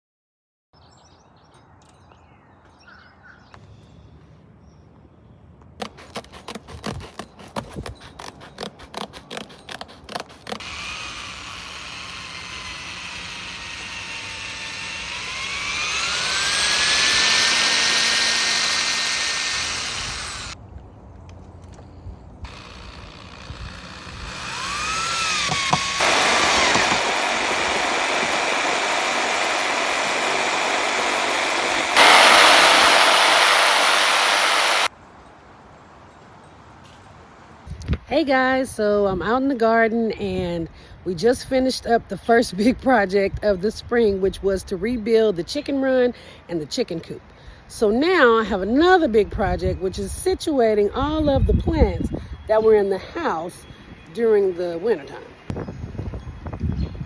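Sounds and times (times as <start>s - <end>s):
power drill motor whining: 5.8s - 20.6s, 22.5s - 34.9s.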